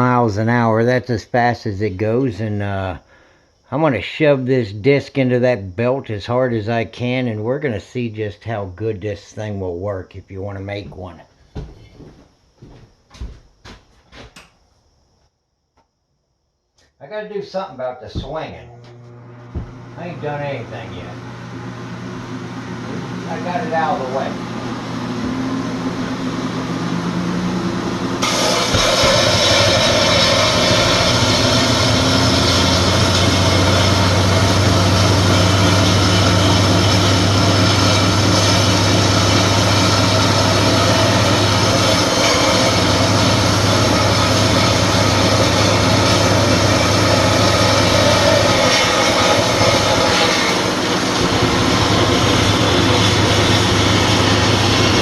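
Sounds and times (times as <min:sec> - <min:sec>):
belt sander motor running: 0:18.1 - 0:55.0
metal grinding on sanding belt: 0:26.6 - 0:55.0.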